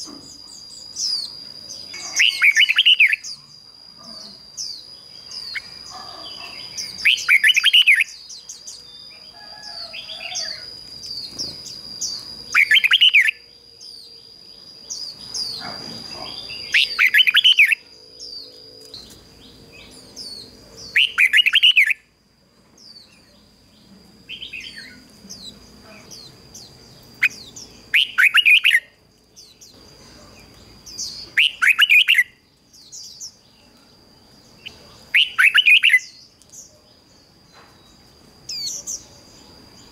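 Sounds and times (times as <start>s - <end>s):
small chirps: 0.0s - 22.1s
bird warbling: 1.9s - 3.4s, 12.0s - 13.4s, 14.9s - 17.8s, 19.8s - 22.0s, 27.2s - 28.8s, 31.3s - 32.3s.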